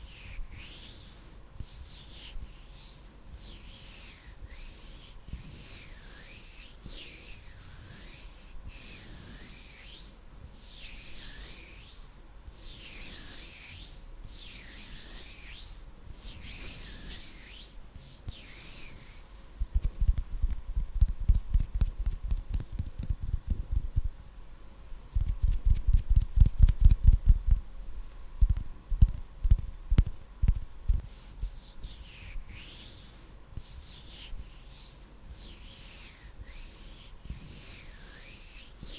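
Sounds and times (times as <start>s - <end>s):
hands rubbing together: 0.5s - 19.2s, 30.9s - 38.9s.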